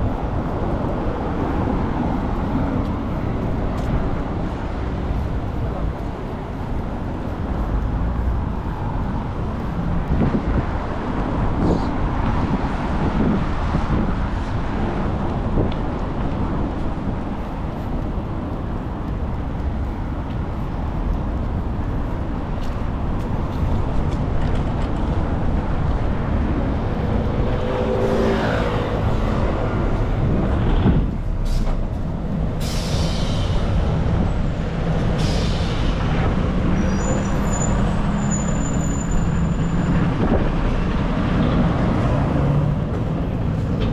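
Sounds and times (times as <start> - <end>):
road traffic rumble: 0.0 - 43.9
air brake hisses: 32.6 - 33.6, 35.2 - 35.9.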